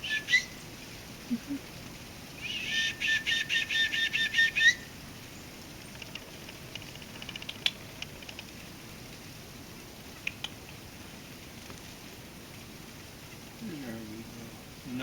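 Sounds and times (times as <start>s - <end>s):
faint soft ticks: 5.8s - 9.2s, 10.2s - 10.8s.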